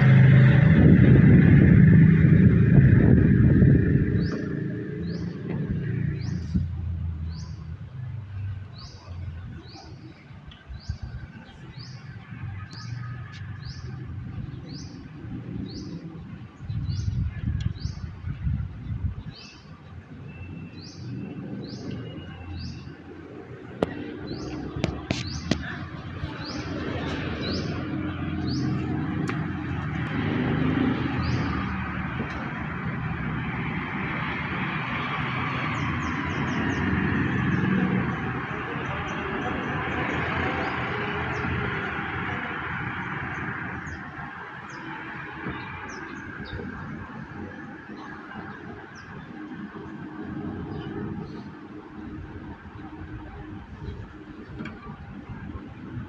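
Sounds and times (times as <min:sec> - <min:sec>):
wind rumbling on microphone: 0:00.0 - 0:56.0
bird chirping: 0:03.5 - 0:18.1, 0:18.8 - 0:32.5.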